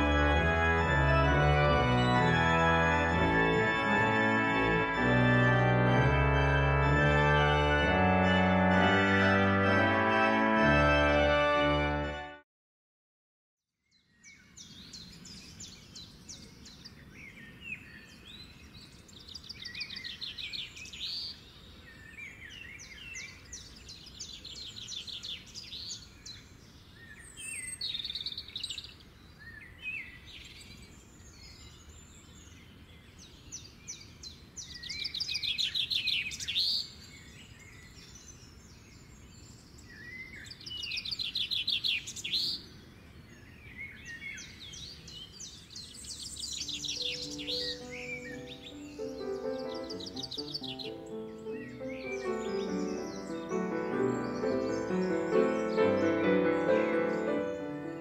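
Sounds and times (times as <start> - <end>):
songbirds singing and chirping: 0.0 - 9.6, 13.8 - 58.0
faint background noise: 14.2 - 58.0.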